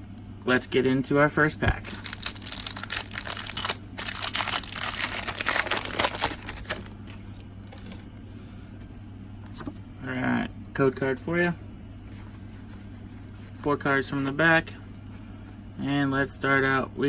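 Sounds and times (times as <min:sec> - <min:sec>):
foil wrapper crinkling: 0:01.7 - 0:07.2.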